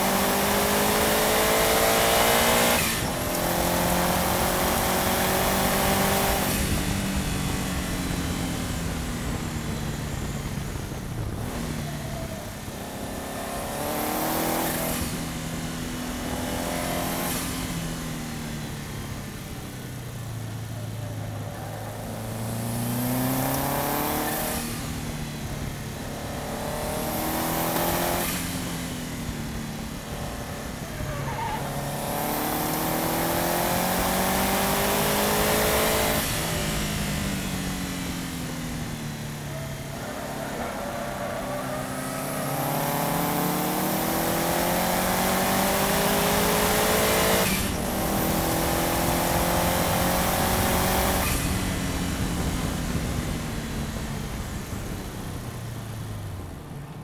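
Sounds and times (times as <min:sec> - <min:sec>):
car engine accelerating: 0:00.0 - 0:57.0
tyre noise: 0:30.0 - 0:32.7.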